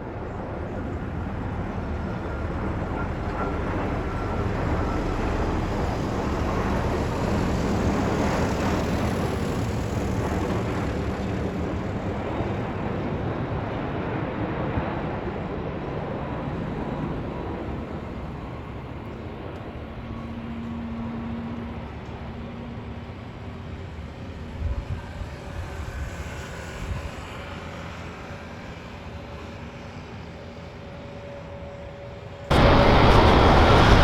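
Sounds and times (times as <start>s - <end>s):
jet engine rumble: 32.5s - 34.0s.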